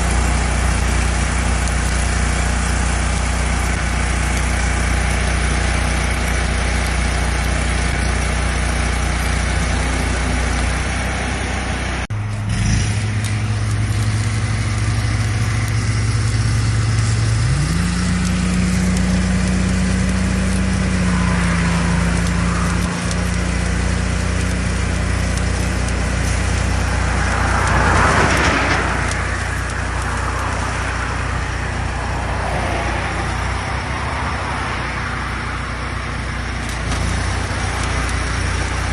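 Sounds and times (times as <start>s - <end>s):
engine humming: 0.0s - 38.9s
vehicle passing by: 16.4s - 24.2s, 26.2s - 38.9s.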